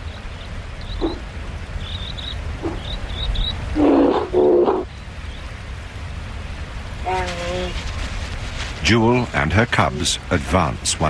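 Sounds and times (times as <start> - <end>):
loud low animal calls: 0.8 - 4.9.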